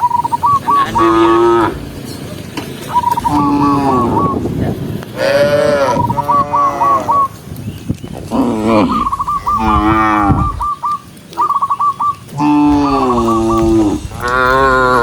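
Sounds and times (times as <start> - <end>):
cattle mooing: 0.8 - 2.1, 3.1 - 4.4, 5.2 - 7.2, 8.3 - 10.6, 12.4 - 15.0.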